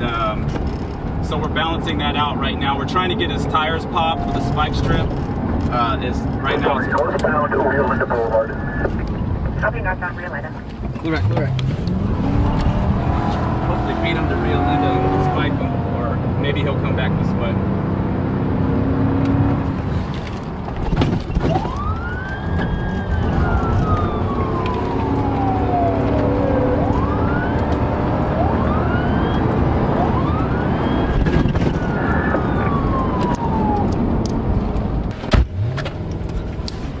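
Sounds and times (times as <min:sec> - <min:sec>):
vehicle engine and road noise: 0:00.0 - 0:37.0
police siren wailing: 0:03.9 - 0:05.2, 0:06.4 - 0:09.0, 0:21.4 - 0:34.5.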